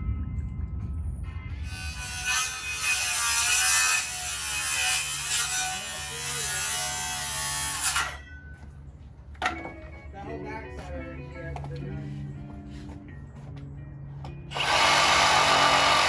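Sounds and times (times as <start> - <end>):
power saw cutting wood: 1.6 - 8.2, 14.5 - 16.0.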